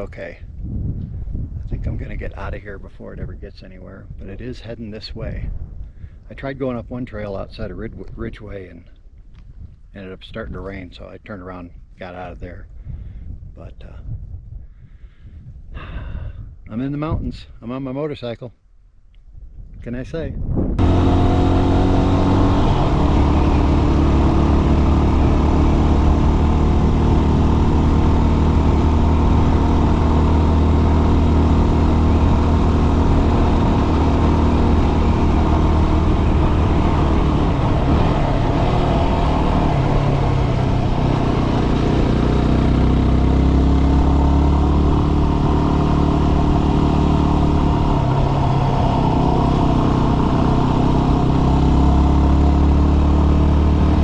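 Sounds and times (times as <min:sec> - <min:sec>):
motorcycle engine running: 0:20.8 - 0:54.0.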